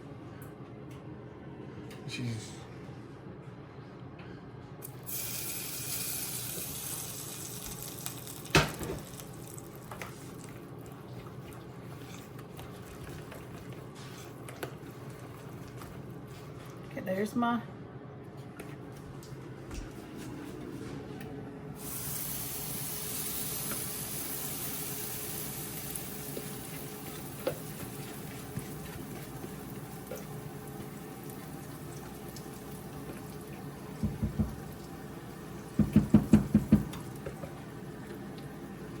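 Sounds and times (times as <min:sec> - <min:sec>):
kitchen tap running: 0:04.8 - 0:11.0, 0:21.8 - 0:39.0.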